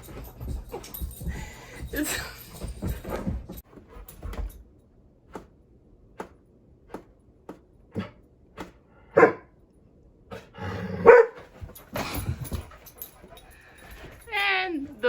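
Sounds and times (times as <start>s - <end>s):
dog barking: 9.1s - 9.5s, 11.0s - 11.4s.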